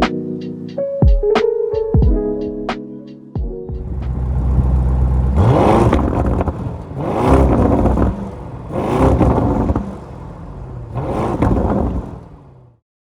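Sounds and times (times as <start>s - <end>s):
car engine revving: 3.8s - 12.8s.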